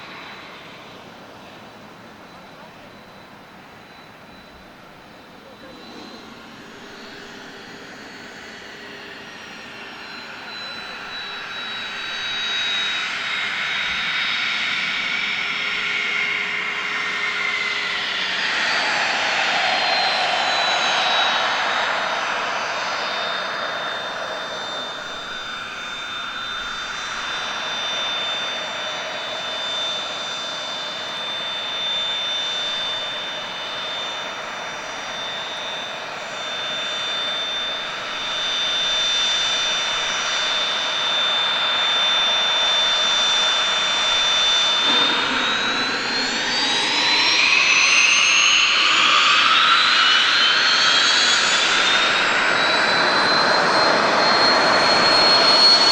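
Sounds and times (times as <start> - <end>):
jet engine high whine: 0.0 - 55.9
jet roar: 0.0 - 55.9.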